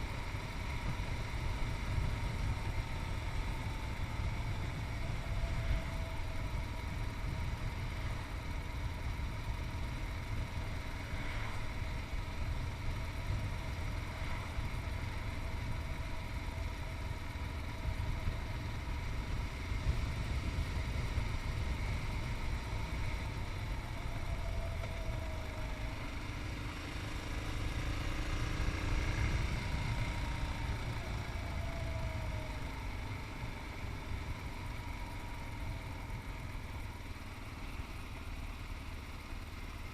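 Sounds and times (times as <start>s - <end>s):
motorcycle engine running: 0.0s - 39.9s
wind rumble on microphone: 10.5s - 26.0s.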